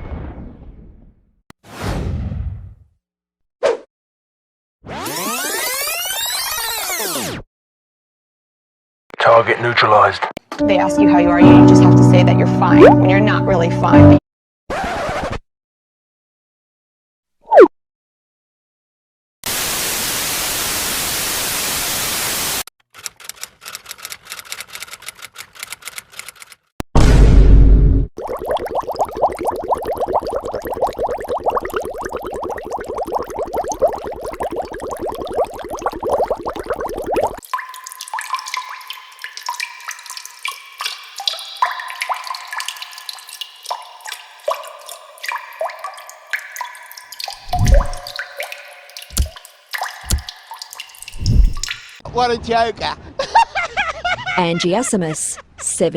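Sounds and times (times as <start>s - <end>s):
water drops dripping: 28.2s - 52.0s.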